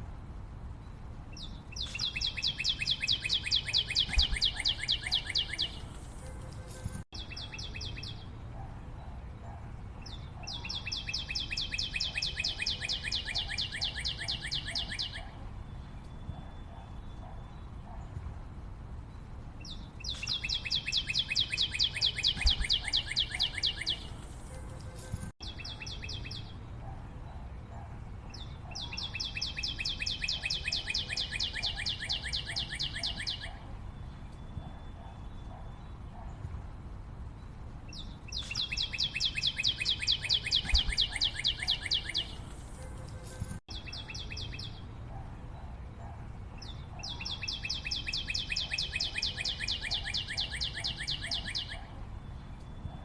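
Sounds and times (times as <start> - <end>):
faint forest background: 0.0 - 53.0
bird trilling: 1.8 - 5.8, 10.4 - 15.3, 20.0 - 24.1, 38.3 - 42.4.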